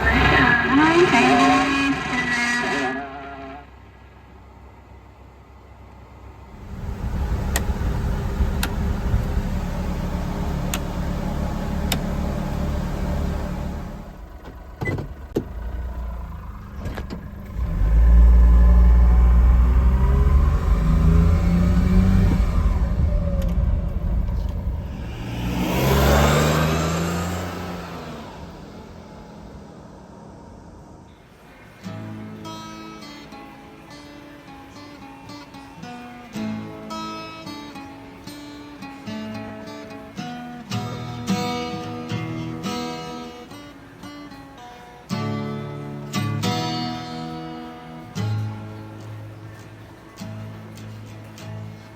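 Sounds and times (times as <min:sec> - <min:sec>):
small truck engine revving: 0:00.0 - 0:04.0, 0:06.4 - 0:31.2.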